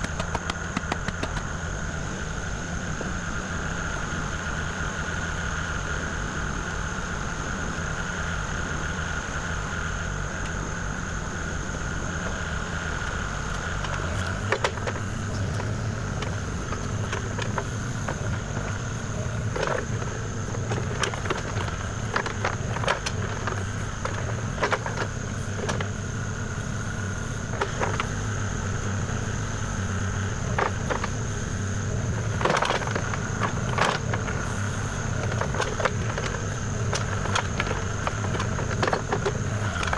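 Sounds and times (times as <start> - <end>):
sharp knocks and cracks: 0.0 - 1.5
diesel engine running: 0.0 - 39.9
high even whine: 0.0 - 39.9.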